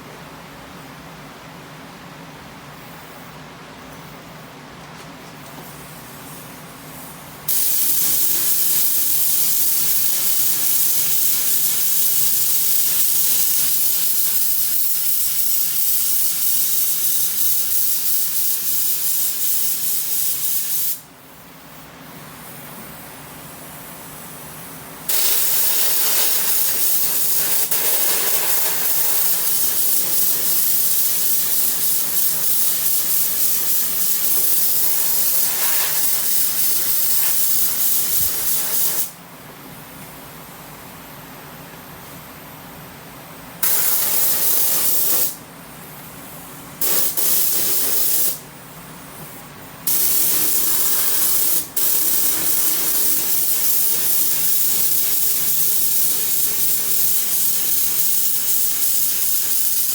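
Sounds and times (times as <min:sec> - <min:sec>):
spray gun hissing: 0:07.5 - 0:21.1, 0:23.6 - 0:39.2, 0:43.6 - 0:45.4, 0:46.8 - 0:48.4, 0:49.9 - 0:59.9.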